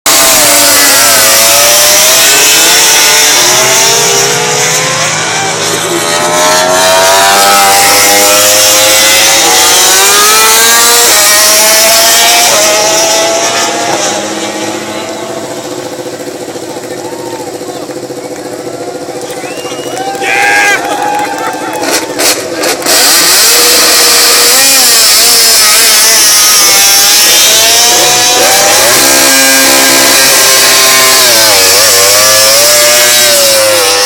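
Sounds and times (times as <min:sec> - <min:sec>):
racing motorcycles accelerating: 0:00.1 - 0:34.0.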